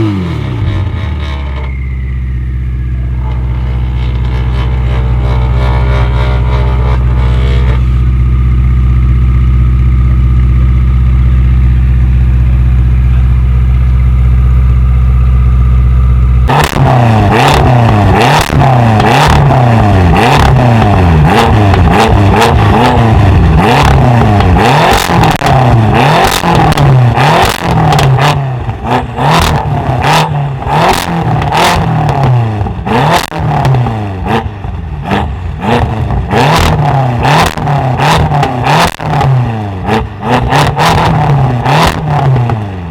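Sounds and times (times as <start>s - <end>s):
car engine revving: 0.0s - 42.9s
exhaust pops and crackles: 3.2s - 8.1s, 16.5s - 30.3s, 30.9s - 34.0s, 35.1s - 42.9s.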